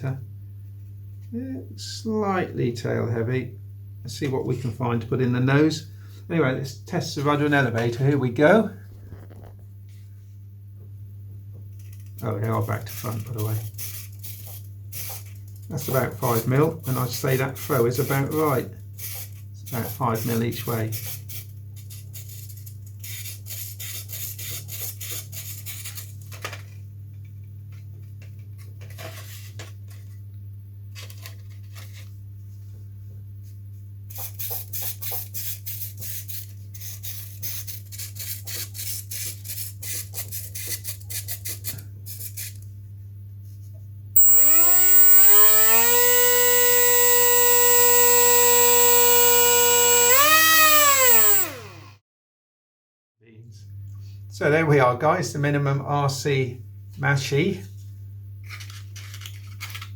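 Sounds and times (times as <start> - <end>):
servos buzzing and ticking: 44.2 - 51.9
electric motor and propeller whine: 44.2 - 52.0.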